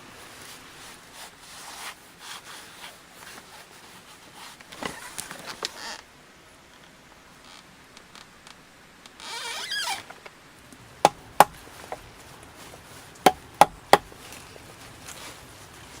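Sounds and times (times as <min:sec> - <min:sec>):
rustling scrape: 0:00.0 - 0:05.9, 0:11.0 - 0:16.0
sharp knocks: 0:11.0 - 0:12.0, 0:13.2 - 0:14.1.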